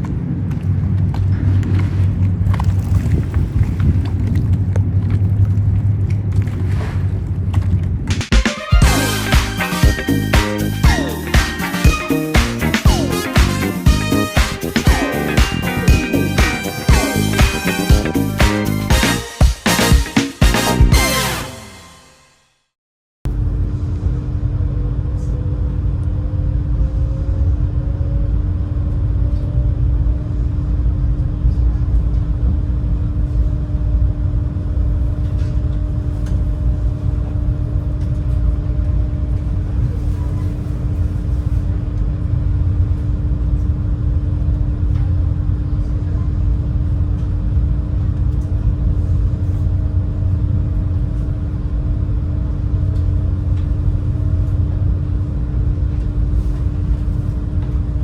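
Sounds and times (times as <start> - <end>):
high engine tone: 8.4 - 22.3
constant hum: 23.3 - 58.0.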